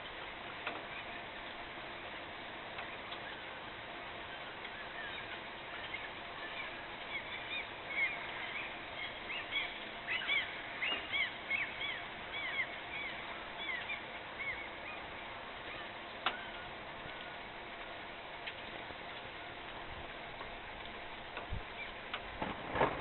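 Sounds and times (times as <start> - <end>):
background hiss: 0.0 - 23.0
birds chirping: 2.8 - 17.6, 21.6 - 22.2.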